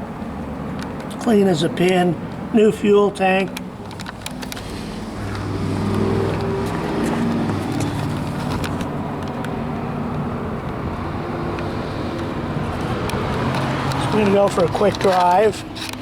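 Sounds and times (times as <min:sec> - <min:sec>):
engine running steadily: 0:03.6 - 0:16.0.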